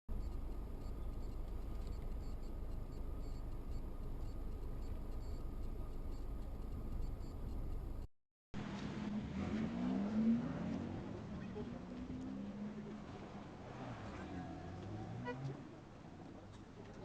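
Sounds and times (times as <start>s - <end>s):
faint steady whine: 0.1s - 8.1s
vehicle road and engine noise: 0.1s - 17.0s.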